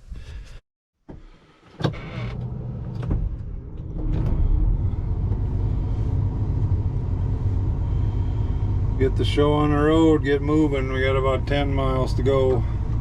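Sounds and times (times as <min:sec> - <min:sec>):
combine engine low rumble: 0:02.0 - 0:13.0.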